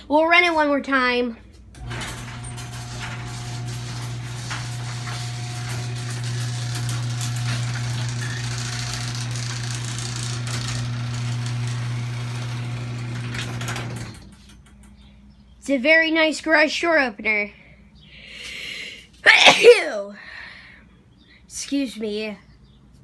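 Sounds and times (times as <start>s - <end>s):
garage door opener motor hum: 1.7s - 14.9s.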